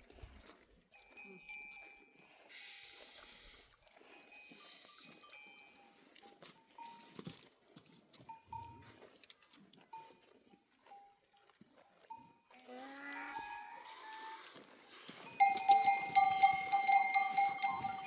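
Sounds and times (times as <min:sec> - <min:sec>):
goat bells clanking: 0:00.9 - 0:02.4, 0:04.2 - 0:09.0, 0:09.9 - 0:14.0, 0:14.9 - 0:18.0.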